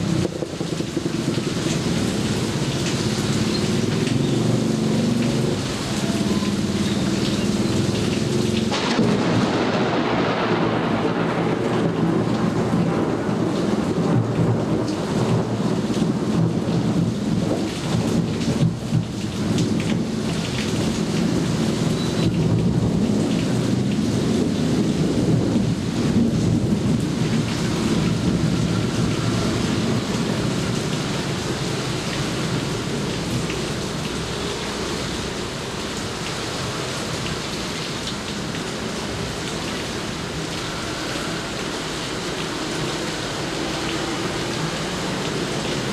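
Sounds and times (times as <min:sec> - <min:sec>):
heavy rain: 0:00.0 - 0:45.9
thunder rumbling: 0:07.6 - 0:33.5.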